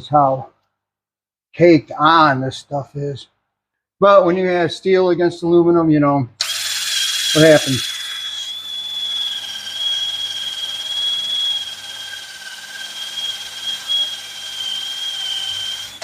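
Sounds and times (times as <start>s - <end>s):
drill spinning wire brush: 6.4s - 16.0s.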